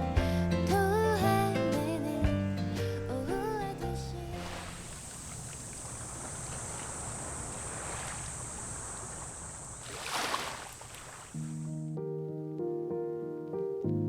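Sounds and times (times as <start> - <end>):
music: 0.0 - 4.6, 11.5 - 14.0
sea waves washing on shore: 2.8 - 11.4.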